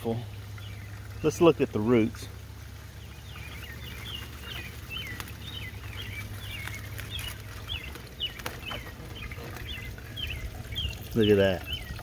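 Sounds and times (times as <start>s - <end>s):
steady low hum: 0.0s - 12.0s
bird singing quick chirps: 3.0s - 12.0s.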